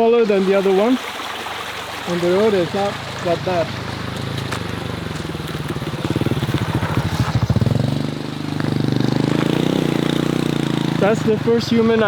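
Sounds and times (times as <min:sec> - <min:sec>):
small motorbike engine running: 0:02.5 - 0:11.4.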